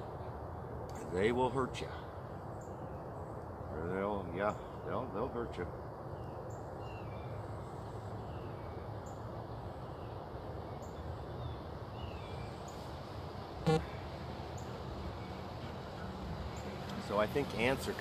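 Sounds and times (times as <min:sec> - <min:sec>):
low hum of distant traffic: 0:00.0 - 0:18.0
faint bird chirps: 0:13.6 - 0:16.8.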